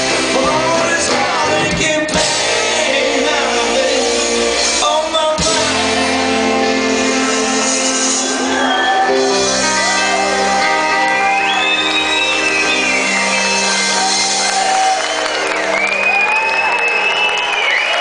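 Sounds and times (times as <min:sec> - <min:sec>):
live band playing chords: 0:00.0 - 0:18.0
crowd shouting and whooping: 0:05.8 - 0:18.0.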